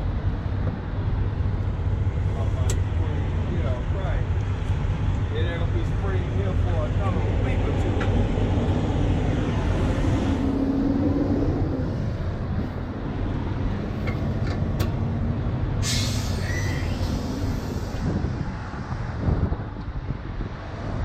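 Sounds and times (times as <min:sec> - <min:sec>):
diesel truck engine idling: 0:00.0 - 0:19.7
compressed air hissing: 0:15.8 - 0:18.2.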